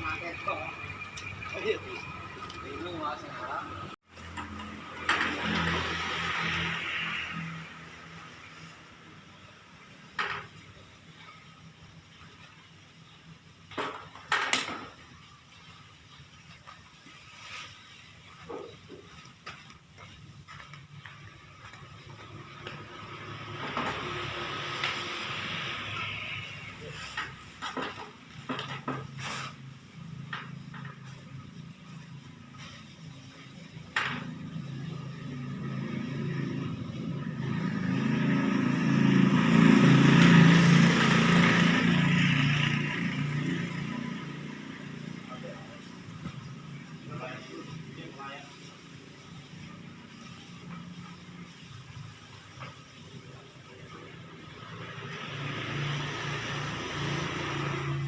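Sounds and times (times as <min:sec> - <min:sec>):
vehicle passing by: 0:00.0 - 0:09.8, 0:21.2 - 0:27.6, 0:34.2 - 0:58.0.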